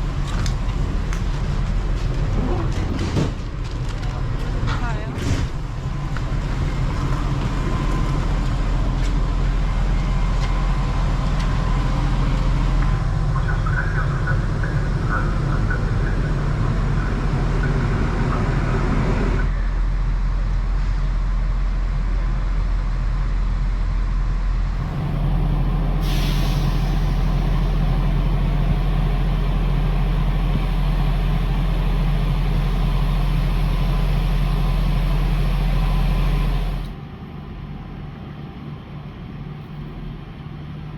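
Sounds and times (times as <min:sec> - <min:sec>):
train running: 0:00.0 - 0:40.9.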